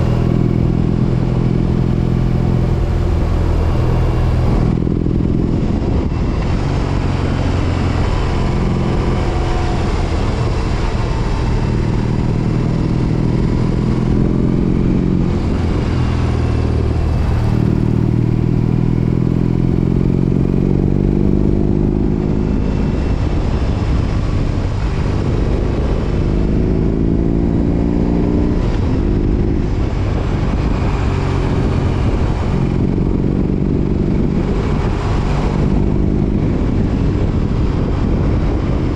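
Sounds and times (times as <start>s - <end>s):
motorcycle exhaust note: 0.0s - 38.9s.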